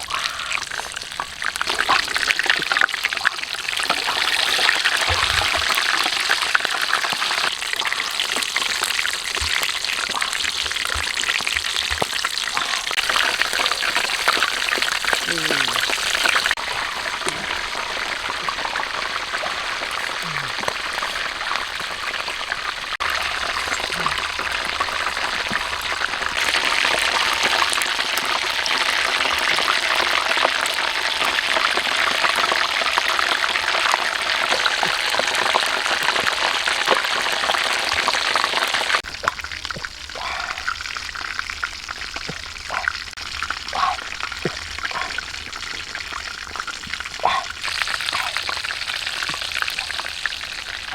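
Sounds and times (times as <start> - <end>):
food sizzling in a pan: 0.0 - 42.2
fat popping: 3.8 - 27.6, 39.0 - 50.9.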